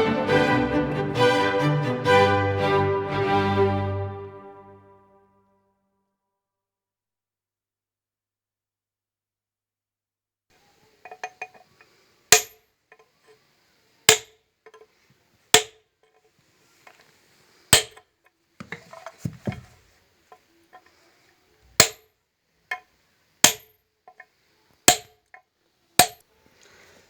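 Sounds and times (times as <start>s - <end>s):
light taps and handling clatter: 11.1s - 11.9s, 14.6s - 15.0s, 17.9s - 21.0s, 24.1s - 24.3s
hammer striking metal ring: 12.3s - 12.6s, 14.1s - 14.3s, 23.4s - 24.2s, 24.9s - 25.2s.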